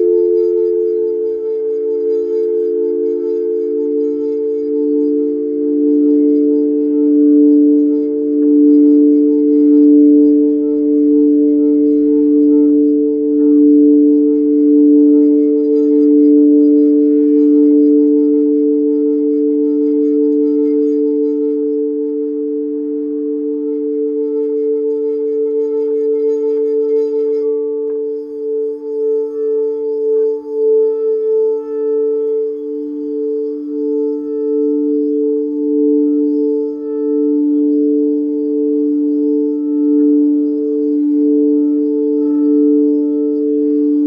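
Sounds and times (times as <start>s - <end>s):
singing bowls pulsing tones: 0.0s - 44.0s.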